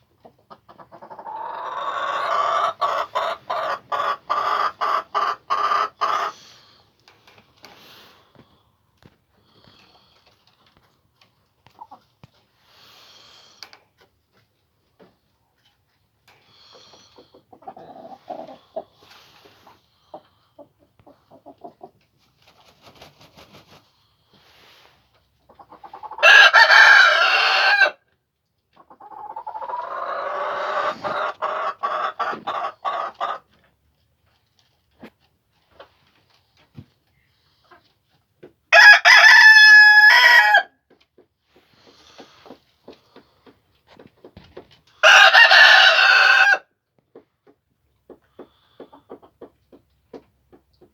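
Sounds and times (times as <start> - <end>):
chickens clucking: 0.0 - 8.6, 9.3 - 27.8, 28.5 - 38.6, 40.9 - 50.9
loud chicken call: 26.2 - 28.0, 38.7 - 40.7, 45.0 - 46.6.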